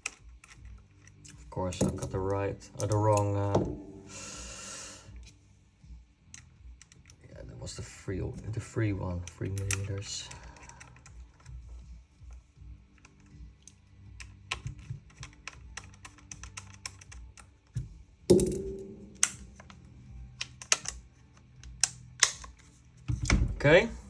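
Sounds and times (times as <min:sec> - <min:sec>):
metal clicks and taps: 0:09.2 - 0:10.0, 0:13.0 - 0:19.8, 0:20.4 - 0:23.4.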